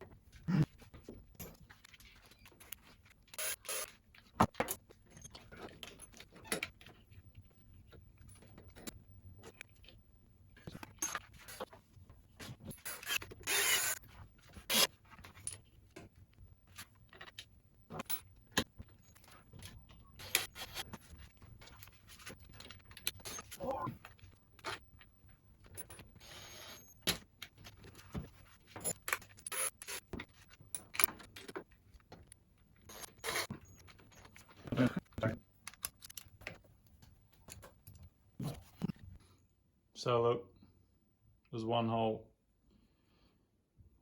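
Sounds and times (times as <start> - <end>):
hand tools clicking and scraping: 12.4 - 15.6, 27.7 - 31.7, 32.9 - 36.6.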